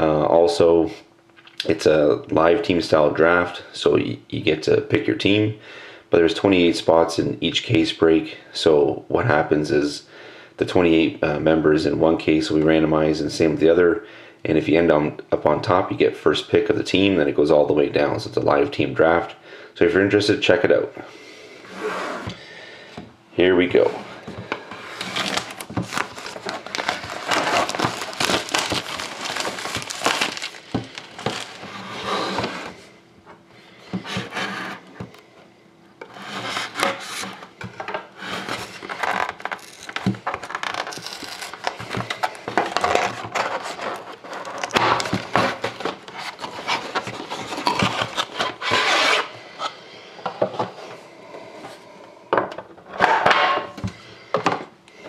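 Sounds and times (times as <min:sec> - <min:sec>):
cardboard and wrapper rustling: 0:24.2 - 0:32.8, 0:38.4 - 0:49.3.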